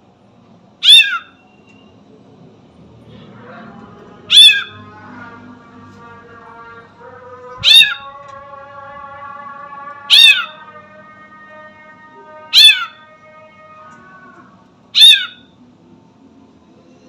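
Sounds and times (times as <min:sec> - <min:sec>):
bird meow-like calls: 0:00.8 - 0:01.6, 0:04.3 - 0:04.8, 0:07.6 - 0:08.3, 0:09.9 - 0:15.5.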